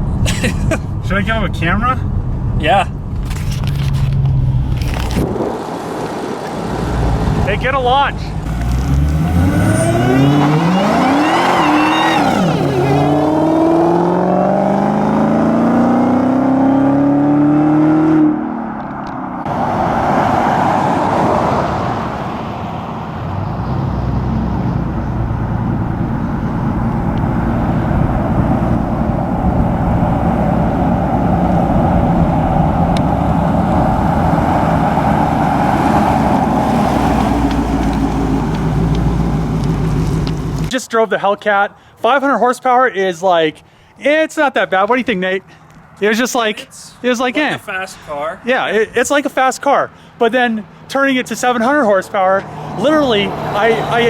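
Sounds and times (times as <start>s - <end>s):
car engine accelerating hard: 4.0s - 40.7s, 52.4s - 54.0s.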